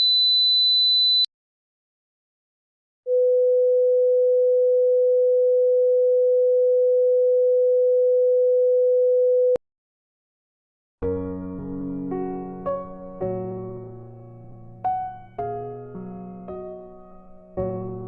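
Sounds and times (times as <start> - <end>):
piano music: 11.0 - 18.0.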